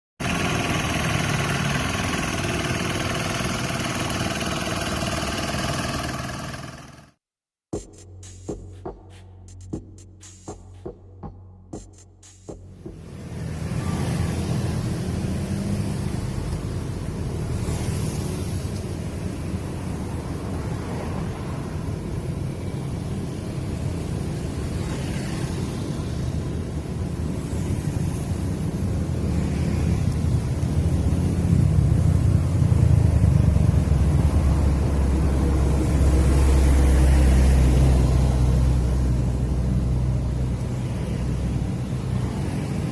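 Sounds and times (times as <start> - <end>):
grass trimmer engine running: 0.2 - 7.2.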